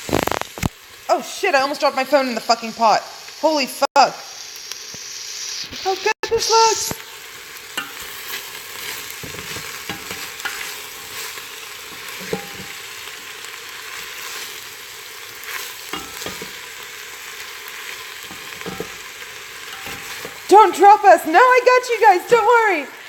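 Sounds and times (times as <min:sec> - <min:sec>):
sauce sizzling in pot: 0:00.0 - 0:23.0
utensil stirring against pot: 0:07.7 - 0:17.4, 0:18.0 - 0:20.6.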